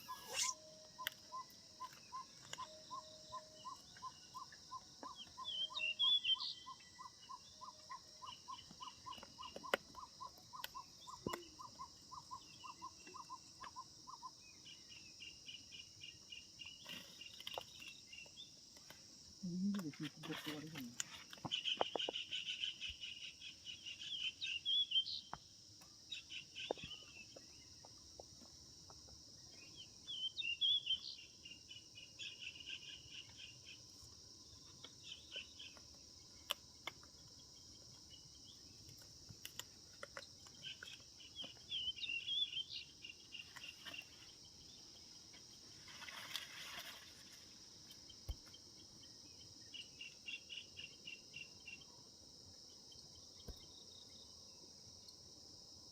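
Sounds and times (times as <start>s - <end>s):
high-pitched insect drone: 0.0s - 5.4s.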